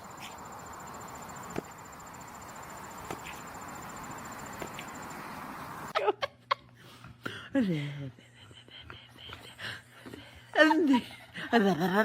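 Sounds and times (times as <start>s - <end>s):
cricket chirring: 0.0s - 5.9s.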